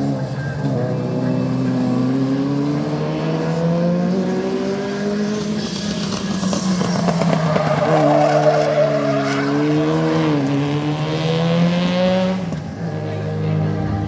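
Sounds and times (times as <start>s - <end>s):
race car engine at high revs: 0.0s - 14.0s
tyres squealing and skidding: 4.8s - 10.6s.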